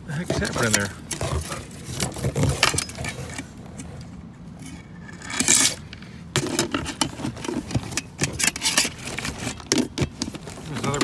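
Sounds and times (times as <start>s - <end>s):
plastic and metal scrap clattering: 0.0s - 11.0s.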